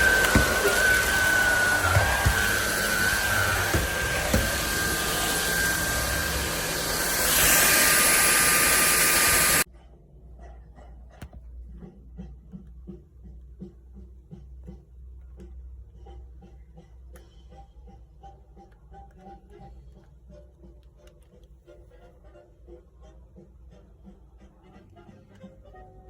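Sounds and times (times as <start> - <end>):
stick vacuum cleaner whining: 0.0 - 9.7.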